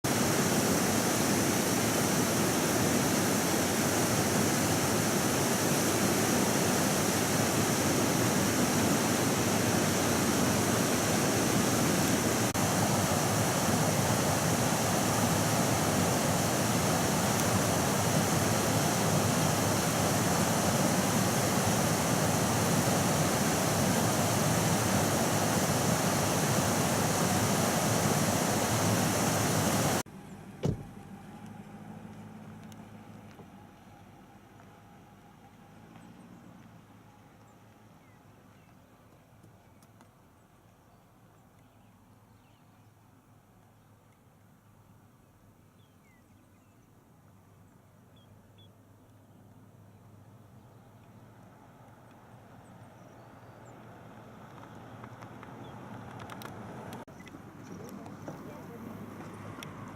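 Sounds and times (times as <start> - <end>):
rushing running water: 0.0 - 30.0.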